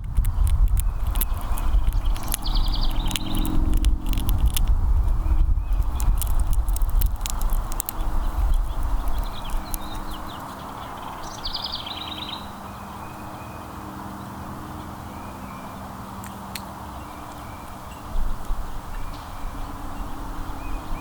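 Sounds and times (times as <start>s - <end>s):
loud low rumble: 0.0s - 10.3s
sharp clicks: 0.0s - 10.6s
songbird chirps and trill: 0.0s - 18.2s
outdoor background noise: 0.0s - 21.0s.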